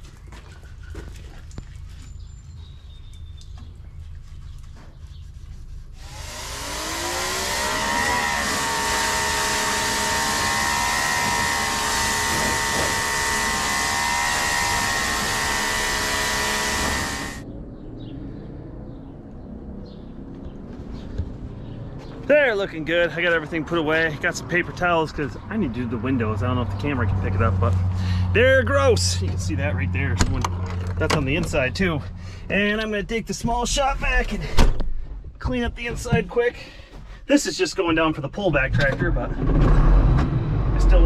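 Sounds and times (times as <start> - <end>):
power washer motor whine: 6.0 - 17.4
low steady rumble: 24.8 - 37.2.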